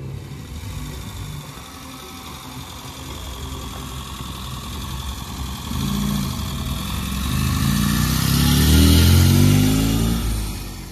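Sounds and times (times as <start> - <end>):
car engine accelerating past: 5.6 - 10.9.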